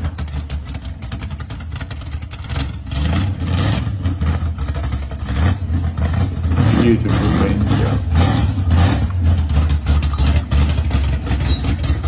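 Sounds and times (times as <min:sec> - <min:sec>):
car engine running slowly: 0:00.0 - 0:12.0.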